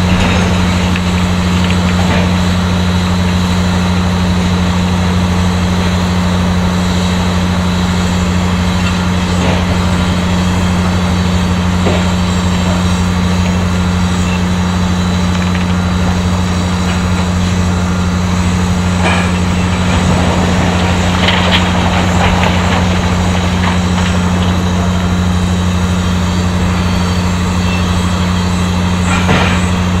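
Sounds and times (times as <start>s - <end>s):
heavy machinery humming: 0.0s - 30.0s
machinery rattling: 0.0s - 30.0s.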